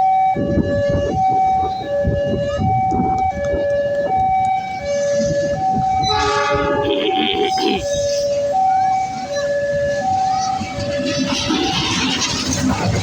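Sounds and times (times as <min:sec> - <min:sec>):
two-tone crossing alarm: 0:00.0 - 0:12.0
steady rumbling noise: 0:09.8 - 0:13.0.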